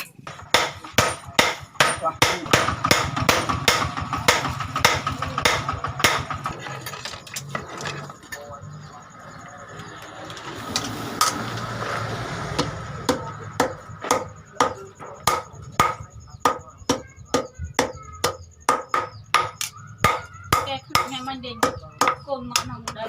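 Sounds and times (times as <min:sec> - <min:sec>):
hammer striking steel: 0:00.0 - 0:06.5, 0:12.6 - 0:23.0.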